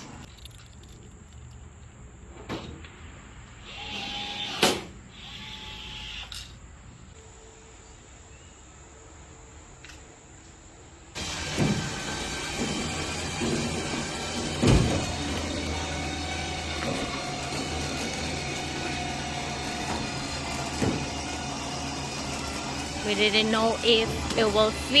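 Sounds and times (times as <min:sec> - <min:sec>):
small electric motor whirring: 0:03.6 - 0:06.5, 0:11.2 - 0:25.0.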